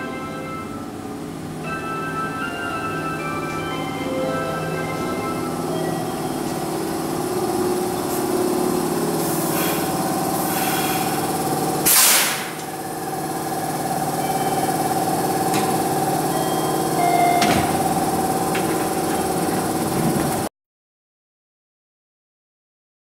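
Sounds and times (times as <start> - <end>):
train machinery humming: 0.0 - 20.5
door sliding open with hiss: 6.4 - 12.8, 16.6 - 20.5
air hiss burst: 9.2 - 12.7.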